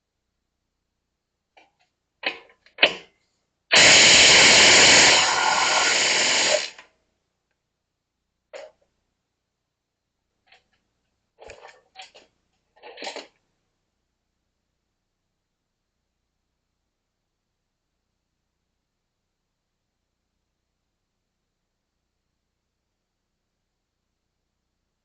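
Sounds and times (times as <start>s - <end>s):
power tool running: 3.7s - 6.8s
tools clicking and knocking: 11.4s - 13.4s.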